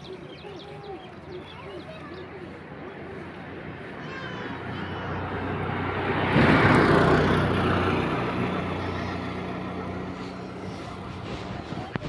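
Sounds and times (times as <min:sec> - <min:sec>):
vehicle passing on road: 0:02.7 - 0:12.0.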